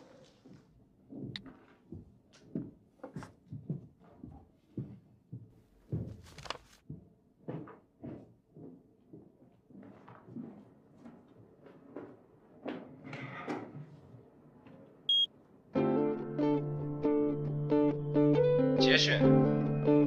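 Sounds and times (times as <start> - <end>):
footsteps on a hard floor: 0.0 - 13.1.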